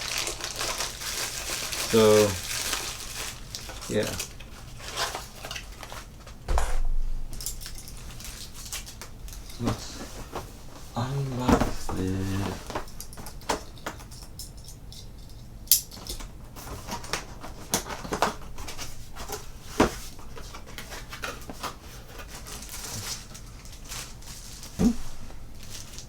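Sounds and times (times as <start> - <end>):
packaging rustling: 0.0 - 13.8, 16.6 - 26.0
knocks: 6.5 - 7.8.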